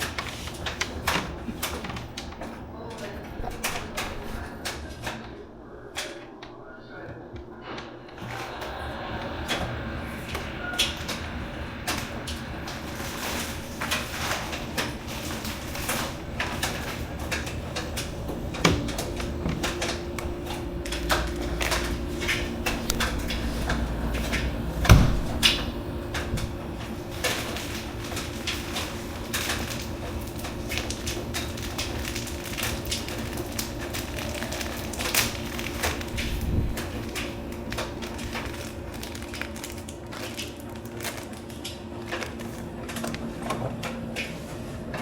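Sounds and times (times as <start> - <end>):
low hum: 8.6 - 30.5
steady motor tone: 8.8 - 30.7
washing machine drum clicks and knocks: 11.8 - 31.9
loud thump: 24.8 - 25.5.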